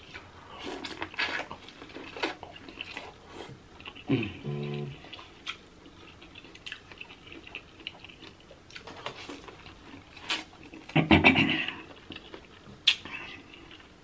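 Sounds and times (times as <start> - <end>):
chewing corn on the cob: 0.0 - 11.0
person humming: 4.1 - 5.0.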